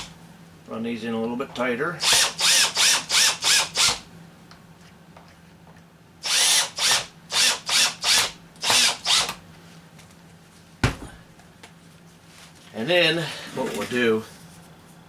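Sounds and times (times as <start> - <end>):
power drill driving screws: 2.0 - 4.0, 6.2 - 9.4.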